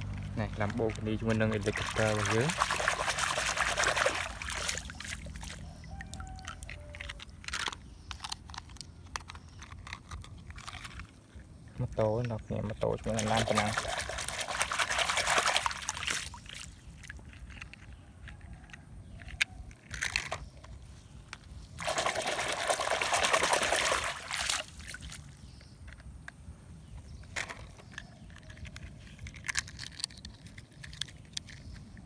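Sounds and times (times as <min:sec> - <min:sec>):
water pouring and splashing: 0:00.0 - 0:07.3, 0:12.8 - 0:17.4, 0:21.6 - 0:25.4
water trickling: 0:00.0 - 0:07.3, 0:11.3 - 0:17.5, 0:21.8 - 0:25.4.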